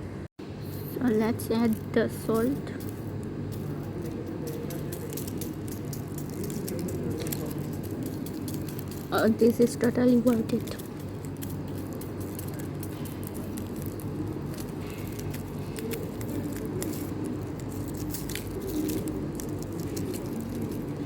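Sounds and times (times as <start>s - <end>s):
low background hum: 0.0s - 21.0s
foil packet rustling: 1.1s - 21.0s.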